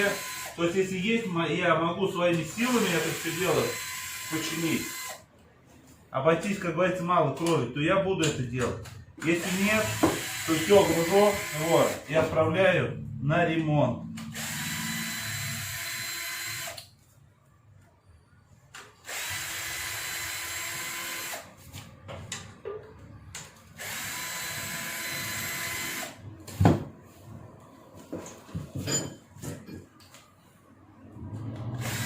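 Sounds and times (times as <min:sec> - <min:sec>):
cordless drill whining: 0:00.0 - 0:00.6, 0:02.7 - 0:05.2, 0:09.4 - 0:12.1, 0:14.3 - 0:16.9, 0:19.0 - 0:21.5, 0:23.8 - 0:26.2, 0:31.8 - 0:32.0.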